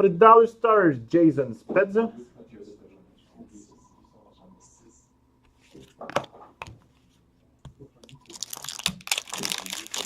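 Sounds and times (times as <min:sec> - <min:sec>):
foil wrapper crinkling: 0:08.1 - 0:10.0.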